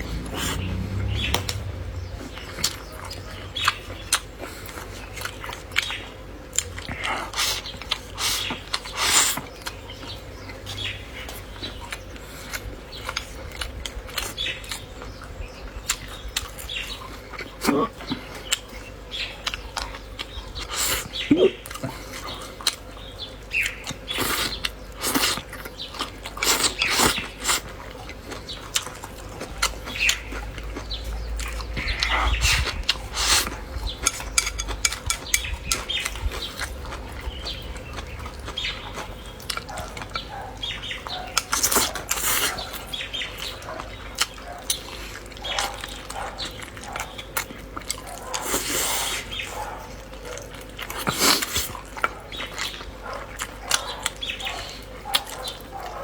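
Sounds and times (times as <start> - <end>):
wet chewing: 0.0 - 56.0.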